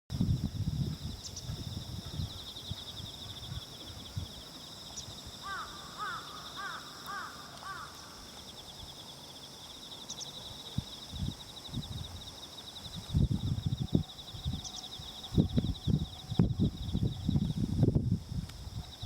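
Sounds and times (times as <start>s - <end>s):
insects chirring: 0.1s - 19.0s
bird harsh calls: 5.4s - 8.3s.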